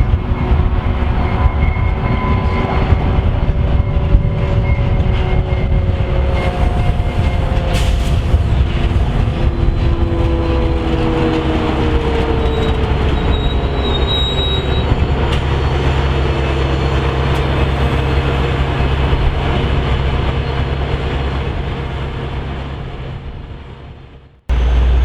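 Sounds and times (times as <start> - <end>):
low falling tone: 0.0 - 19.4
train rumbling past on rails: 0.0 - 25.0
thin wheel squeal: 12.5 - 14.9.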